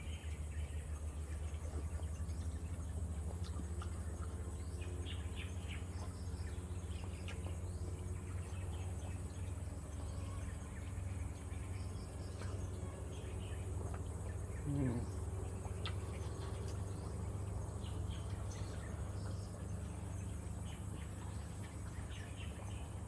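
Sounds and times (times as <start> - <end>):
birds chirping: 0.0 - 23.0
steady low rumble: 0.0 - 23.0
insects buzzing: 4.6 - 22.8.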